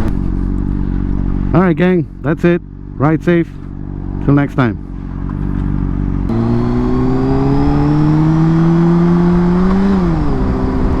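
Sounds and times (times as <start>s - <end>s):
motorcycle engine revving: 0.0s - 11.0s
wind rush on microphone: 9.5s - 11.0s.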